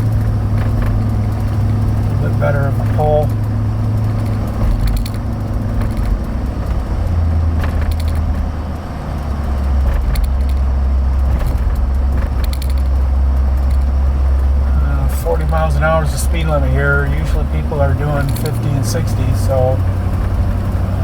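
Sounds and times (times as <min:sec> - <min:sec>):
light knocks and rattles: 0:00.0 - 0:08.6, 0:09.2 - 0:14.6
car engine and tyre drone: 0:00.0 - 0:21.0.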